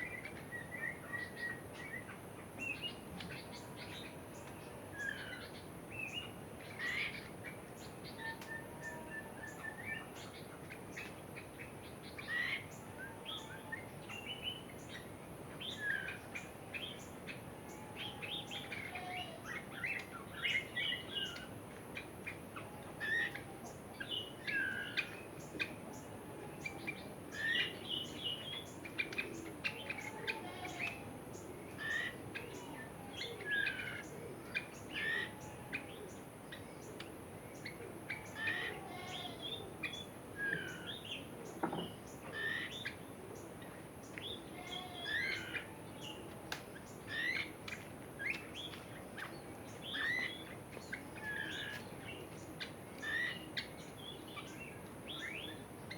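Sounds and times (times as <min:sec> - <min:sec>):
steady background hiss: 0:00.0 - 0:55.9
birds chirping and whistling: 0:47.1 - 0:51.8, 0:53.0 - 0:55.6.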